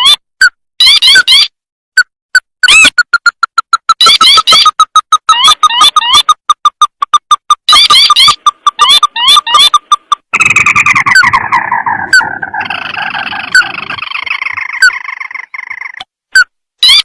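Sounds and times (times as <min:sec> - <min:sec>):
crake calls and rattling trills: 0:02.7 - 0:17.0.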